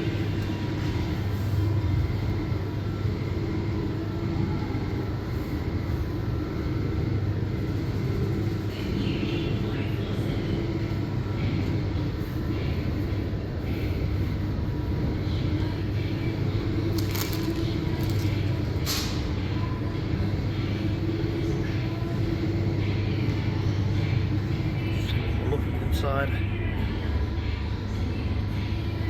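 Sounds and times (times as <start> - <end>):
washers and dryers humming: 0.0 - 29.0.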